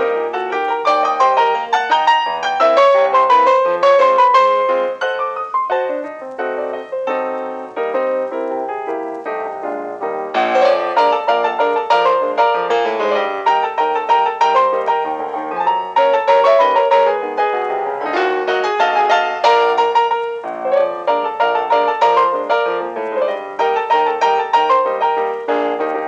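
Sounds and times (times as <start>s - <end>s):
solo piano music: 0.0s - 26.0s.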